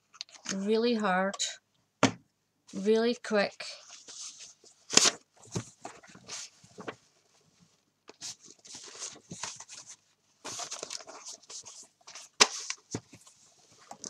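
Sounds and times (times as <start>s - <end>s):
book pages rustling: 3.8s - 14.0s.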